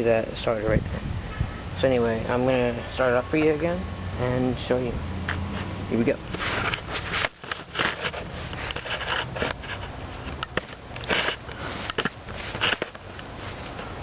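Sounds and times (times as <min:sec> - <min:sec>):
engine turned over by hand: 0:06.3 - 0:13.8.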